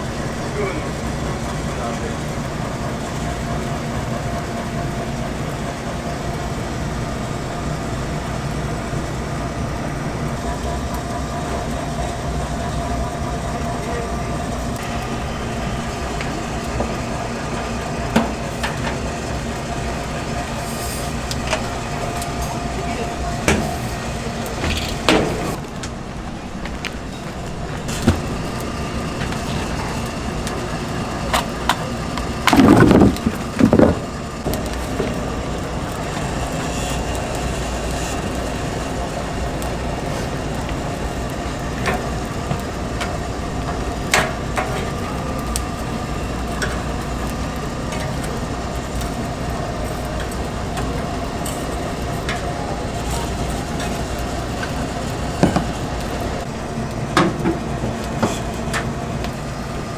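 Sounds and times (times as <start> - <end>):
rotisserie mechanical hum: 0.0 - 59.9
burning wood cracks and clicks: 4.2 - 59.9.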